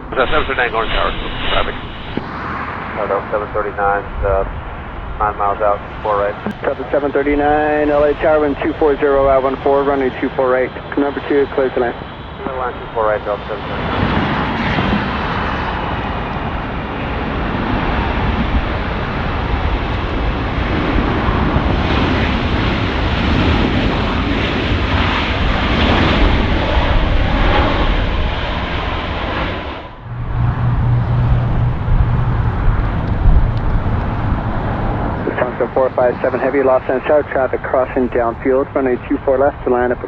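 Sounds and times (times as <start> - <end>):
steady low hum: 0.0 - 14.4, 29.8 - 40.0
jet engines running loudly: 0.0 - 40.0.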